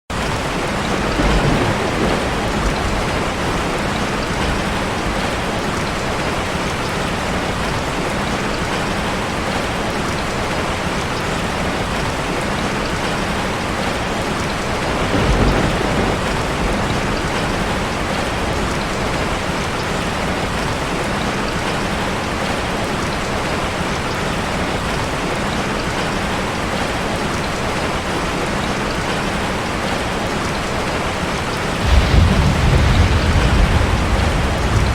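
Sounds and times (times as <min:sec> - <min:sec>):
heavy rain on a car: 0:00.1 - 0:34.9
low rumble: 0:31.8 - 0:34.9.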